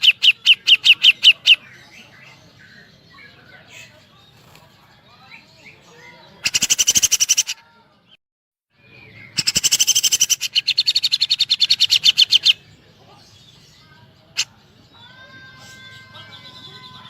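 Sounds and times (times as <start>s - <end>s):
faint calls of other birds: 0.0s - 7.8s
bird giving rapid trills: 6.4s - 7.6s, 9.4s - 12.6s.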